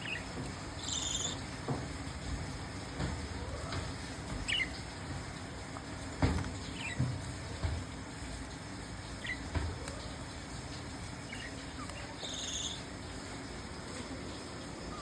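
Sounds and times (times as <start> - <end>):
budgerigars chirping: 0.0 - 1.5, 4.4 - 4.8, 6.6 - 7.1, 9.1 - 10.2, 11.2 - 12.9
budgerigar buzzy trill: 0.0 - 1.6, 9.0 - 15.0.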